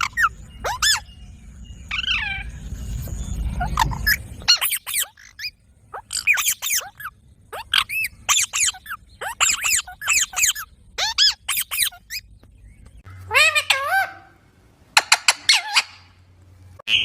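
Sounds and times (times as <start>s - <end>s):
parakeet shrill squawks: 0.0s - 1.1s, 1.9s - 2.6s, 3.6s - 12.2s, 13.1s - 14.4s, 15.2s - 16.1s
low rumble: 0.0s - 15.0s.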